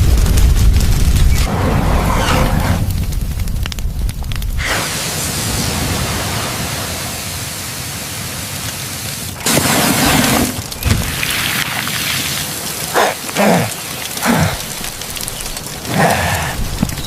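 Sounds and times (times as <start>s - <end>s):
low rumble: 0.0s - 4.7s.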